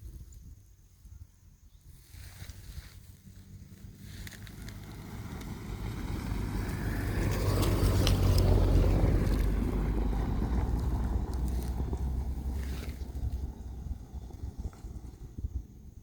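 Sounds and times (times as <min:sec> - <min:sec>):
tyres on dirt road: 0:00.0 - 0:16.0
car engine running: 0:03.3 - 0:15.9.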